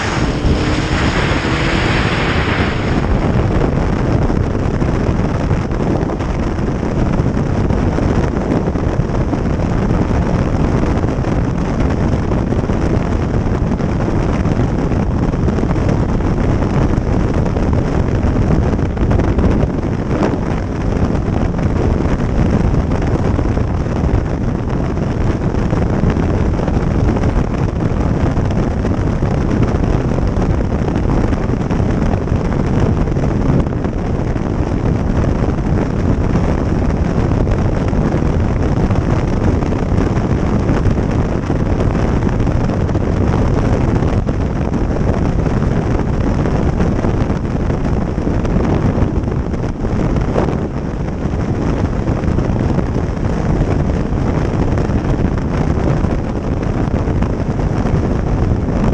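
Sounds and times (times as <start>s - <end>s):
road noise: 0.0s - 9.0s
motorcycle running: 0.0s - 58.8s
wind buffeting microphone: 0.0s - 58.9s.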